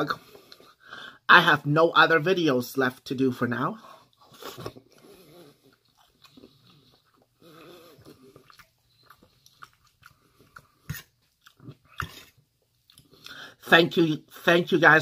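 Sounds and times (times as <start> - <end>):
person chewing: 4.0 - 13.5.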